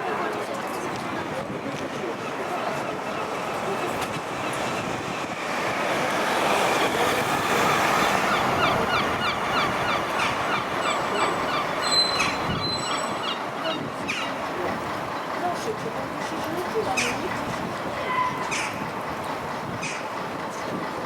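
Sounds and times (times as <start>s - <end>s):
bus engine rumbling: 0.0s - 21.0s.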